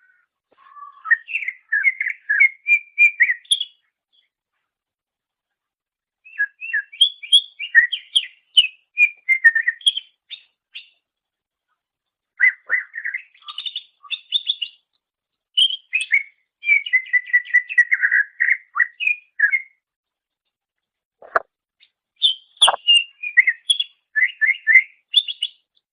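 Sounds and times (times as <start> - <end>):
songbird chirping and whistling: 0.0 - 4.3, 6.2 - 11.0, 12.4 - 14.9, 15.6 - 19.8, 21.2 - 25.8.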